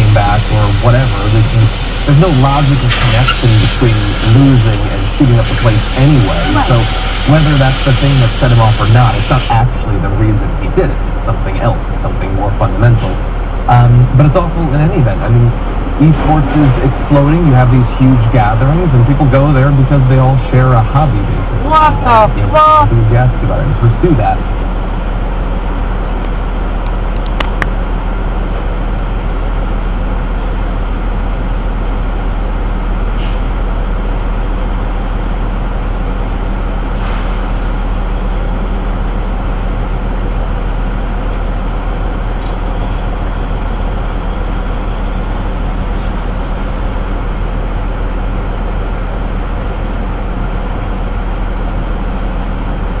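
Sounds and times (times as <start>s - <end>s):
short hiss: 0.0s - 4.6s, 5.3s - 9.6s
heavy truck engine and road noise: 0.0s - 53.0s
sharp clicks: 26.2s - 27.7s.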